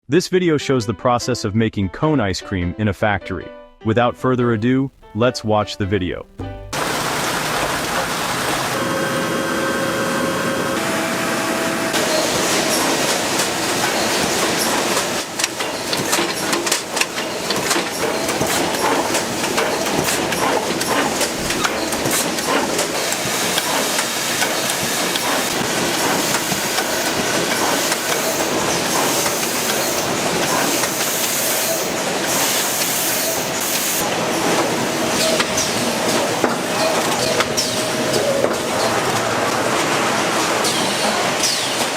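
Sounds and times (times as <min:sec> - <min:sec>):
machinery clattering: 0:04.4 - 0:11.2, 0:11.8 - 0:41.9
machinery hiss: 0:06.8 - 0:38.2.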